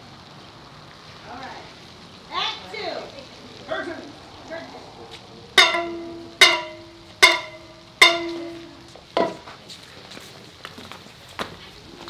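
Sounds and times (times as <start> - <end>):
struck ringing note: 5.6 - 9.0.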